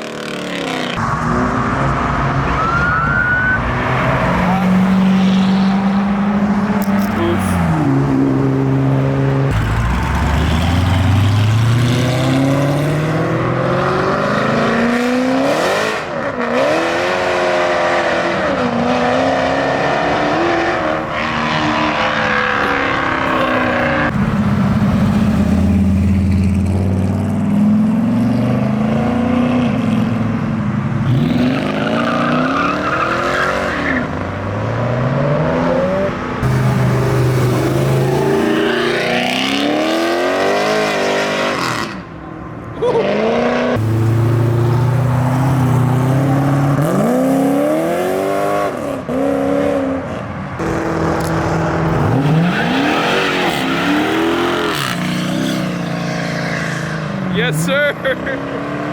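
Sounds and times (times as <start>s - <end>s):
car engines revving: 0.0s - 58.9s.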